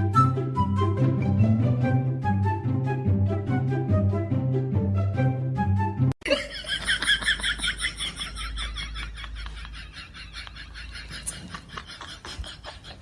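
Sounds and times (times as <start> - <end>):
brief music: 0.0 - 6.1.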